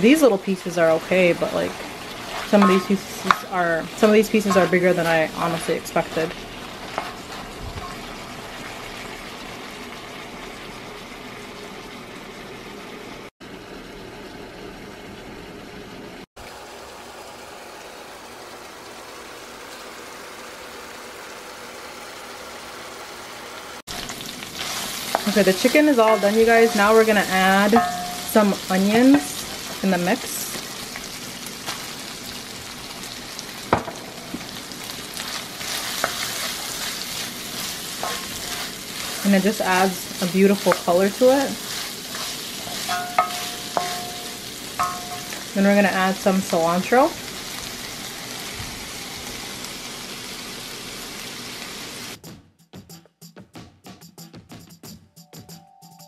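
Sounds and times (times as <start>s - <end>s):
chicken sizzling in a frying pan: 0.0s - 52.2s
wooden spoon knocking pan: 2.6s - 3.6s, 4.4s - 5.0s, 25.1s - 29.5s, 33.7s - 34.5s, 42.7s - 45.5s.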